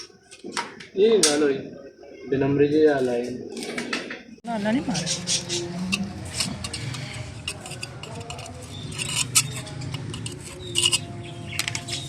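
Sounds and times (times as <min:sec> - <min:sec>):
metal tools clinking and scraping: 0:04.9 - 0:12.0
metal clatters: 0:05.9 - 0:12.0.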